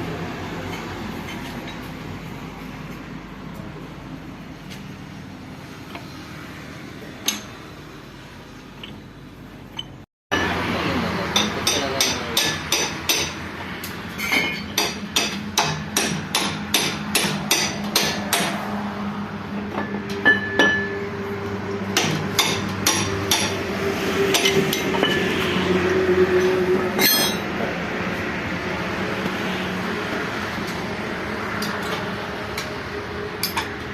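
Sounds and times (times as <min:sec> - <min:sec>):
hammer striking metal: 0:11.3 - 0:13.4, 0:14.2 - 0:18.6, 0:19.7 - 0:21.0, 0:22.0 - 0:23.6, 0:24.3 - 0:25.3, 0:27.0 - 0:27.5.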